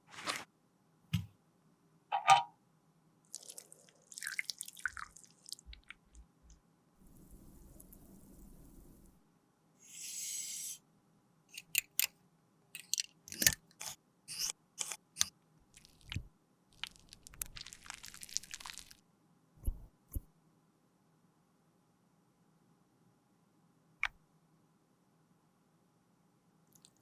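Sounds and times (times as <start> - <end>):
rustling scrape: 0.0 - 0.5
crisp clicks and crunches: 15.7 - 19.0.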